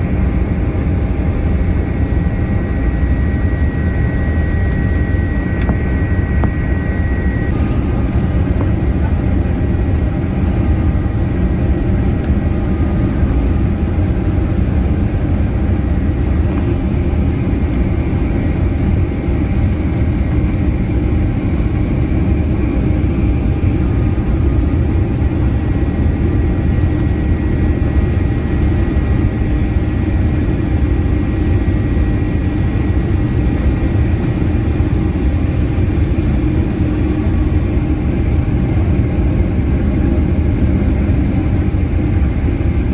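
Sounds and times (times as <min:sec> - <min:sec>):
airliner cabin rumble: 0:00.0 - 0:42.9
faint steady tones: 0:00.1 - 0:18.1.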